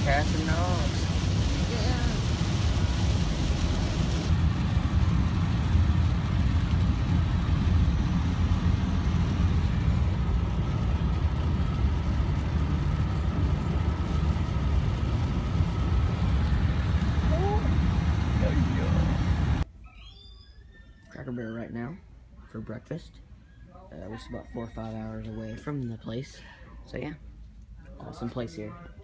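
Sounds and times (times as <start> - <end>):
car road and engine rumble: 0.0 - 19.7.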